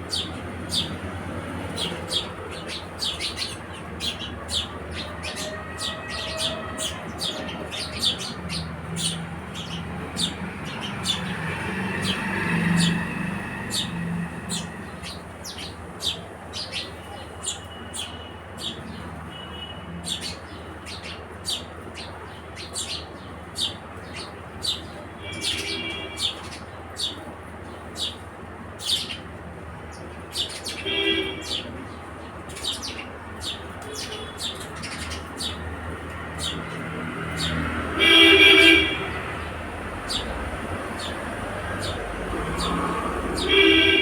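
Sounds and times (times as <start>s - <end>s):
sparrows chirping: 0.0s - 44.0s
traffic hum: 0.0s - 44.0s
vehicle horn honking: 38.0s - 39.1s, 43.4s - 44.0s.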